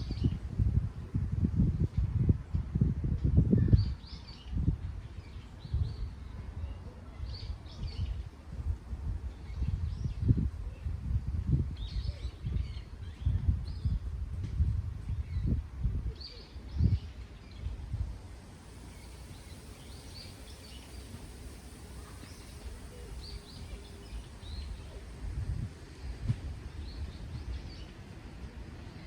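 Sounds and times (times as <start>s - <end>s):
wind gusting on microphone: 0.0s - 6.8s, 7.4s - 29.0s
small birds chirping: 16.2s - 25.3s.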